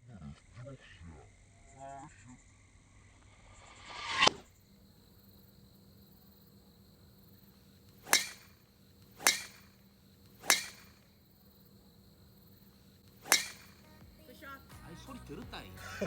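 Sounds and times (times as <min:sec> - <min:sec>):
golf club whooshing through air: 0:08.0 - 0:11.1, 0:13.1 - 0:13.9.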